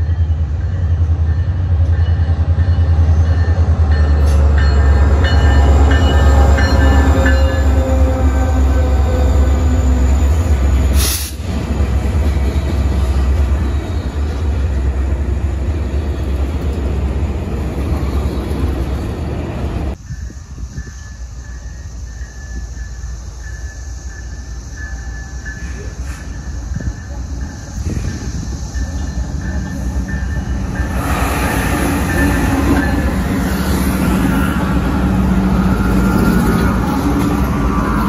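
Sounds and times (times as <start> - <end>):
diesel locomotives rumbling: 0.0 - 38.0
train cars rolling on rails: 0.0 - 38.0.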